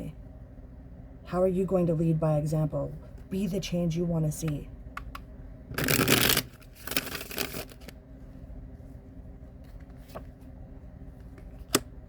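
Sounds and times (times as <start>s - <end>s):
cards being shuffled: 5.7s - 8.0s.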